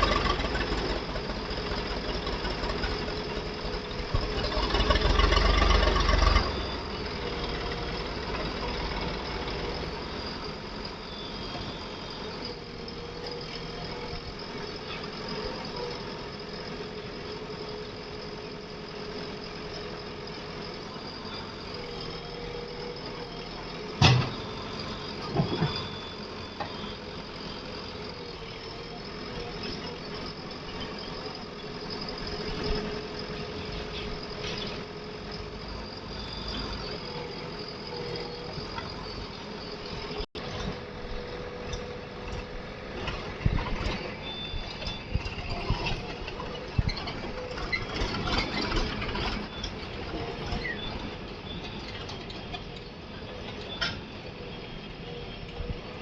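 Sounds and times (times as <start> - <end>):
diesel engine idling: 0.0 - 14.5.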